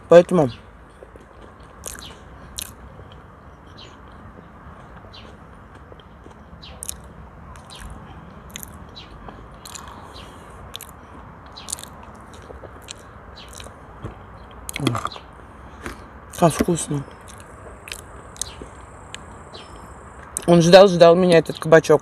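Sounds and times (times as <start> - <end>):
person chewing food: 1.2 - 3.3, 4.0 - 15.0, 17.2 - 18.9
wet mouth clicks and lip smacks: 1.6 - 2.8, 6.8 - 8.8, 9.6 - 10.0, 10.7 - 13.8, 17.2 - 19.2.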